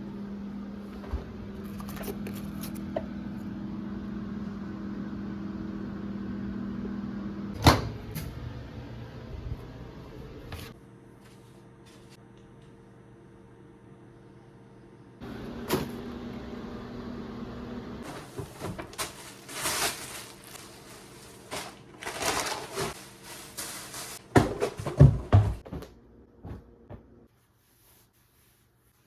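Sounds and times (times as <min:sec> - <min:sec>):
rustling: 0:18.0 - 0:25.6.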